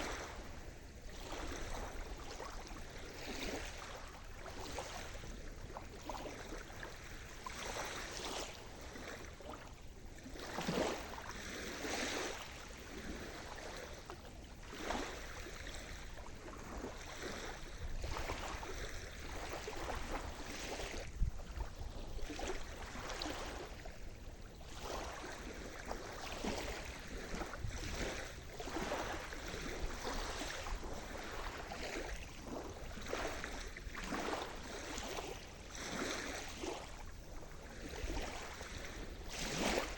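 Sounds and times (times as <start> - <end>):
small waves breaking: 0.0 - 39.9.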